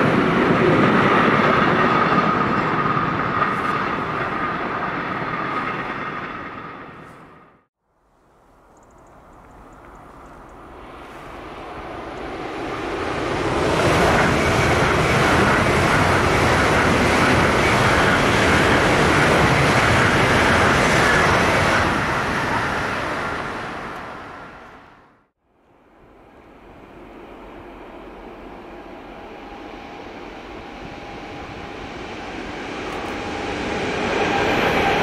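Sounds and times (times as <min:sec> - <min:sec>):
high-speed train passing: 0:00.0 - 0:35.0.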